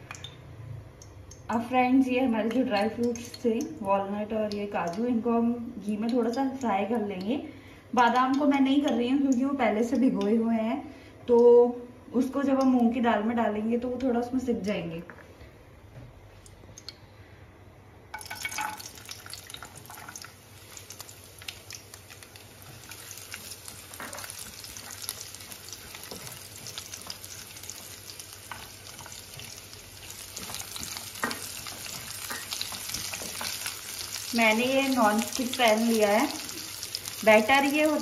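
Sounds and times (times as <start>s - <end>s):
nuts sizzling in hot fat: 18.2s - 38.0s
spatula tapping and scraping pan: 22.6s - 34.2s.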